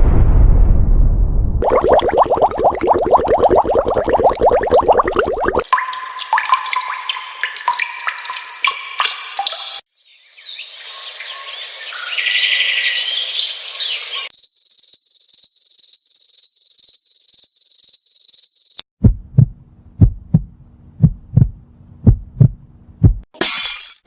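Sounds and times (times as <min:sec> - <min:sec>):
cricket chirping: 0:13.0 - 0:18.8
heartbeat thumps: 0:19.0 - 0:23.3.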